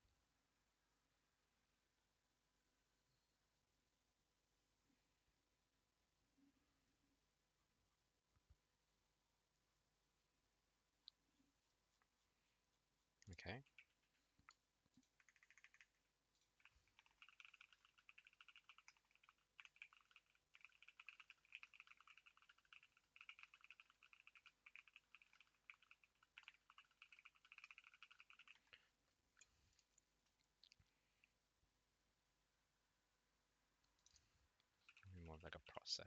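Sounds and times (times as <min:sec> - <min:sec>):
faint rapid keyboard typing: 0:13.2 - 0:31.3, 0:33.8 - 0:36.0.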